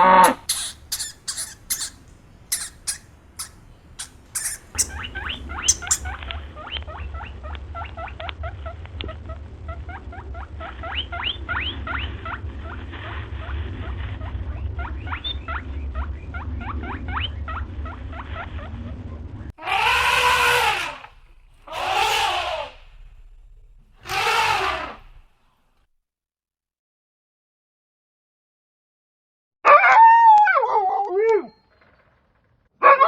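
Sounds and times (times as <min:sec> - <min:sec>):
small animal squeaking: 0:00.0 - 0:07.9, 0:19.6 - 0:23.0, 0:24.0 - 0:25.2
low rumble: 0:00.1 - 0:24.1.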